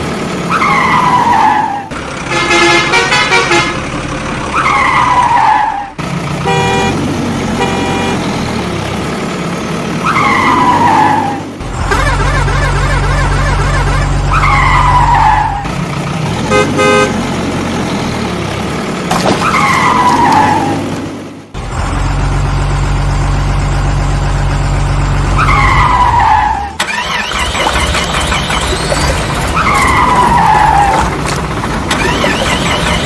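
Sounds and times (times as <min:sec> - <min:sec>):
horn toots: 0:02.3 - 0:03.8, 0:06.4 - 0:08.3, 0:16.4 - 0:17.2
falling squeal: 0:25.3 - 0:31.1
cartoon engine rumble: 0:26.8 - 0:33.0.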